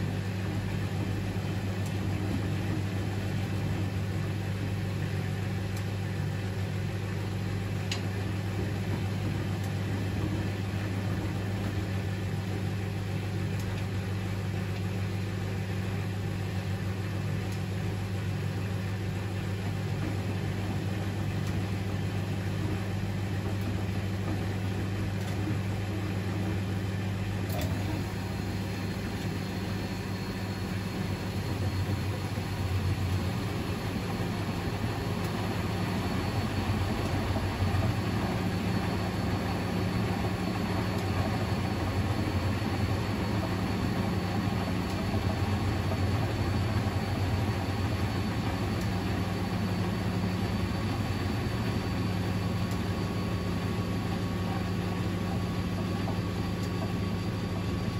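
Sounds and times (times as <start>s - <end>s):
washing machine motor hum: 0.0s - 57.9s
click: 5.7s - 5.9s, 7.9s - 8.1s, 13.6s - 13.9s, 27.5s - 27.8s, 52.7s - 52.9s, 56.6s - 57.3s.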